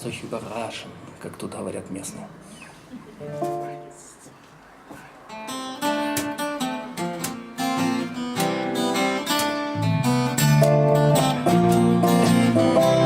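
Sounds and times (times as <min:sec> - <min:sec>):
acoustic guitars strumming: 0:03.2 - 0:04.0, 0:05.3 - 0:13.0
low bass line: 0:09.8 - 0:13.0.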